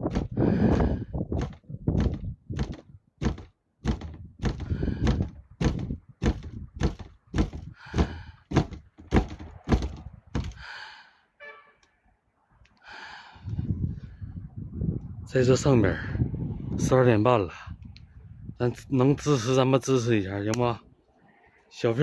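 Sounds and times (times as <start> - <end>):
dull thuds: 0.0 - 10.7.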